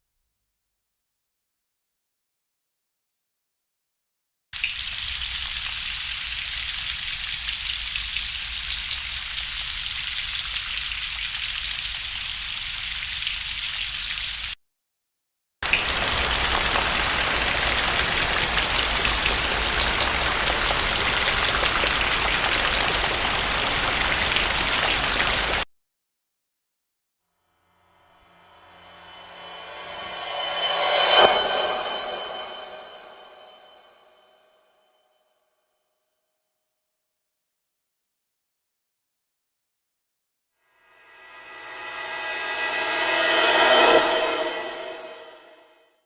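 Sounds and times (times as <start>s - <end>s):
full rain-like hiss with rumble: 15.7s - 25.6s.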